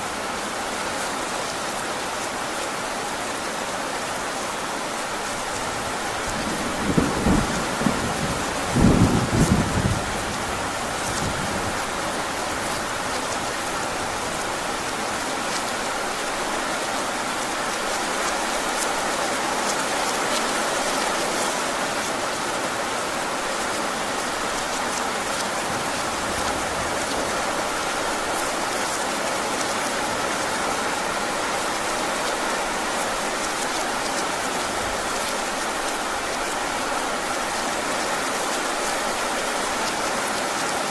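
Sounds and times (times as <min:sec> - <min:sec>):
heavy rain falling: 0:00.0 - 0:40.9
close thunder rumble: 0:06.3 - 0:12.2.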